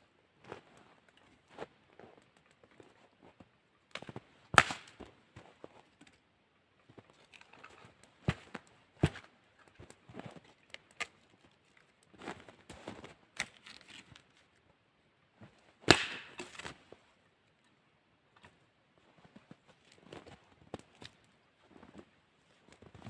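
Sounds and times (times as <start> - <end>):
dry sticks snapping: 3.9 - 5.0, 10.6 - 11.9, 13.4 - 14.4, 15.9 - 16.7.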